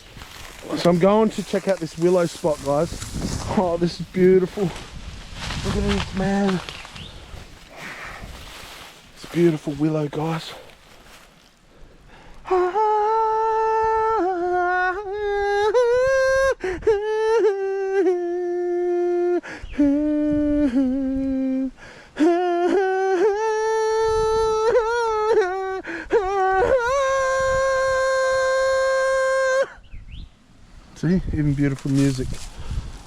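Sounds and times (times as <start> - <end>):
person humming a slow tune: 12.4 - 29.8.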